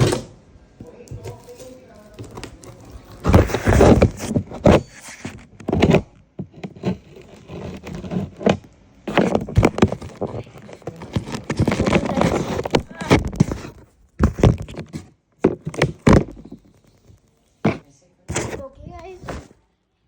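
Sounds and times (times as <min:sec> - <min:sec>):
knocks and thumps of packaging: 0:00.0 - 0:16.9, 0:17.6 - 0:19.6.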